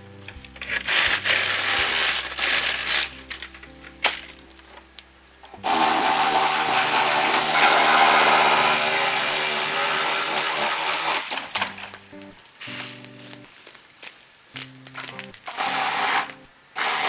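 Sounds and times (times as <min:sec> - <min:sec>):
background music: 0:00.0 - 0:13.8, 0:14.6 - 0:17.0
power tool running: 0:00.7 - 0:03.6, 0:05.5 - 0:11.9, 0:15.5 - 0:17.0.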